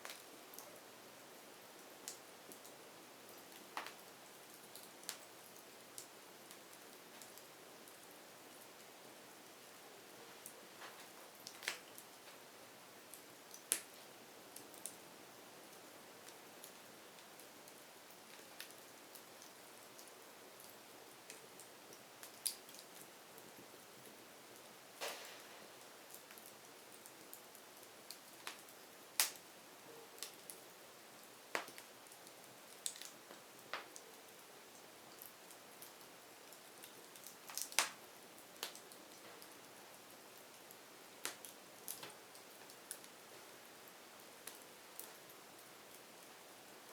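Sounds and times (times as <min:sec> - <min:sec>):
wood fire crackling: 0:00.0 - 0:46.9
sharp fire pops: 0:25.0 - 0:26.0, 0:37.5 - 0:38.0.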